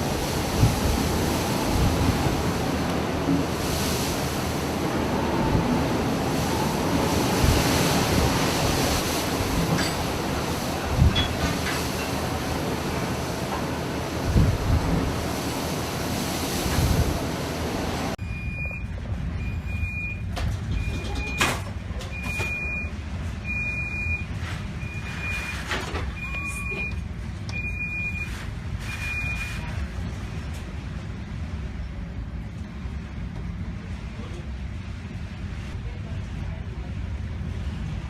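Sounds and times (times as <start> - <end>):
wind and sea rushing: 0.0 - 21.0.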